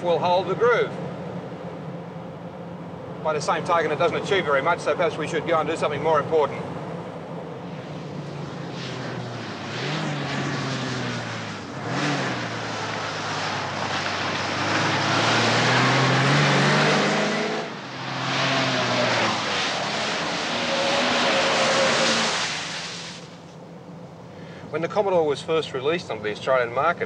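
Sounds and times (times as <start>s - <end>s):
tyre and road noise: 0.0s - 25.1s
car engine revving: 7.0s - 23.4s.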